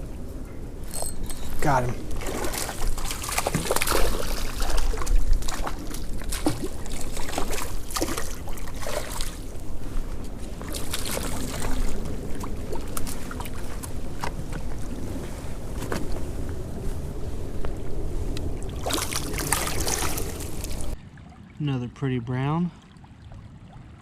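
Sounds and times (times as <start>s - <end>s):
wind buffeting microphone: 0.0s - 21.0s
running creek water: 0.8s - 15.8s, 18.4s - 24.0s
fish splashing in water: 2.1s - 9.7s, 10.6s - 15.0s, 18.6s - 21.3s.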